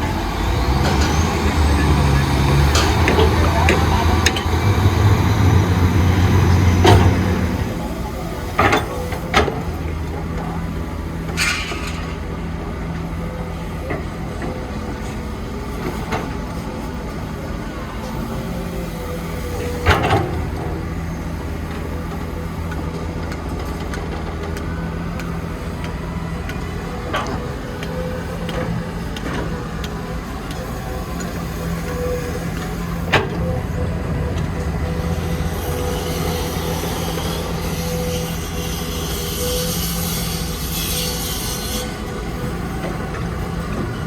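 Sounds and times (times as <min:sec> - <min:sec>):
heavy machinery engine running: 0:00.0 - 0:44.0
metal clanks: 0:11.3 - 0:12.3.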